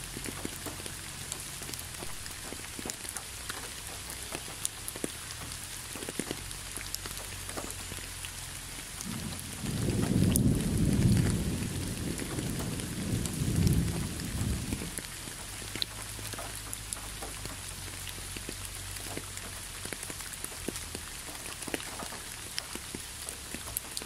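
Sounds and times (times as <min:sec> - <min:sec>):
rain dripping on leaves: 0:00.0 - 0:24.0
low thunder rumble: 0:09.0 - 0:16.0.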